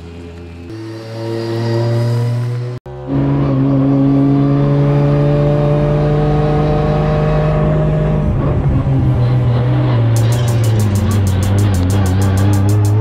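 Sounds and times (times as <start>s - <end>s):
car engine running: 7.8s - 13.0s.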